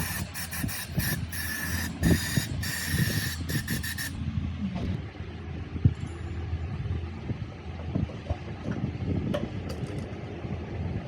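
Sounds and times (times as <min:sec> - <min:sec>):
hissing spray bursts: 0:00.0 - 0:04.1
steady low hum: 0:00.0 - 0:11.0.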